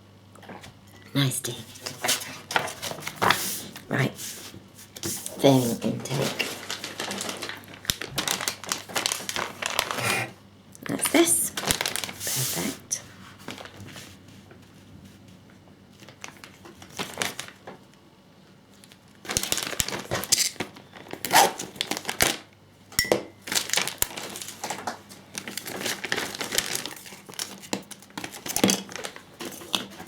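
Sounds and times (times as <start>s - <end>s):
plastic packaging crinkling: 4.9s - 10.3s, 11.5s - 12.6s, 13.2s - 13.9s, 16.0s - 17.9s, 18.8s - 22.5s, 23.4s - 30.0s.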